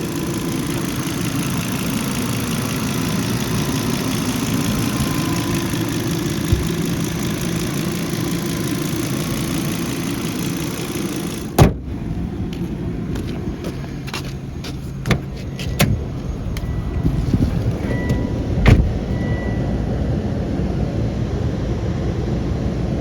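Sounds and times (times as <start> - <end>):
car engine idling: 0.0 - 22.4
loud thump: 6.4 - 6.8, 11.6 - 11.9, 18.1 - 19.1.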